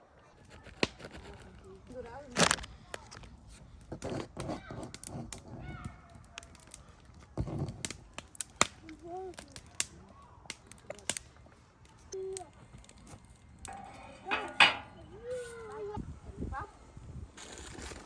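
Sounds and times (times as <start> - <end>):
young child's voice: 8.8 - 9.7, 12.1 - 12.6.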